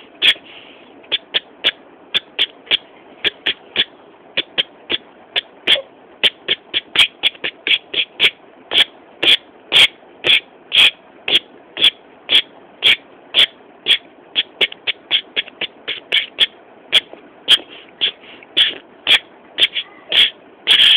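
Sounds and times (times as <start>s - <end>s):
faint hiss: 0.0s - 14.0s
sharp ticking clicks: 1.1s - 20.9s.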